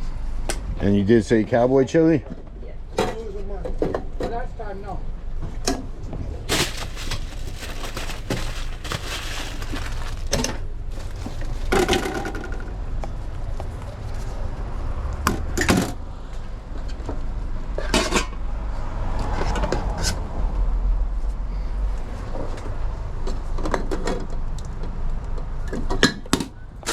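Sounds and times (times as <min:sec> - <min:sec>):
kitchen utensils clattering: 0:06.5 - 0:12.5.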